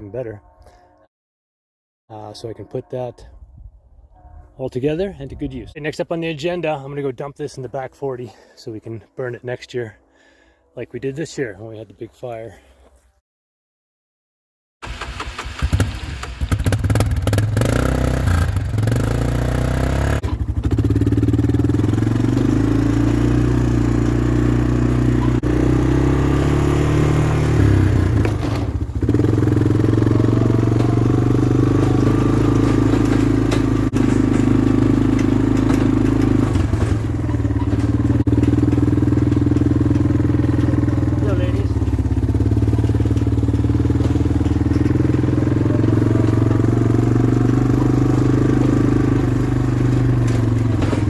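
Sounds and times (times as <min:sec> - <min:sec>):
quad bike engine running: 0:15.6 - 0:51.0.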